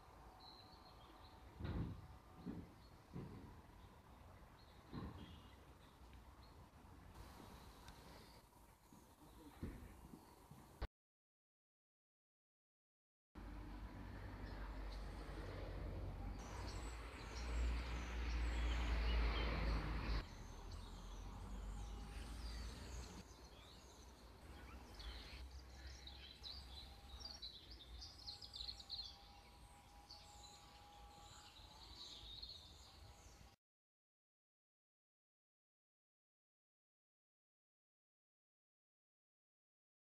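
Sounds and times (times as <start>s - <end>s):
birds chirping: 16.3s - 33.6s.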